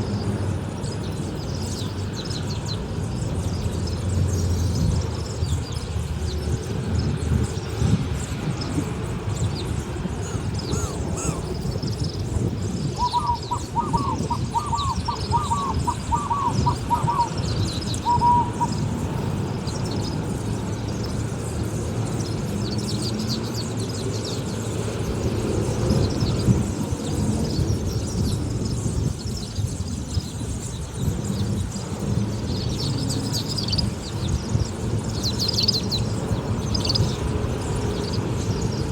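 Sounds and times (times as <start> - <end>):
small birds chirping: 0.0 - 38.9
bird hooting repeated notes: 13.0 - 17.4, 18.0 - 18.9.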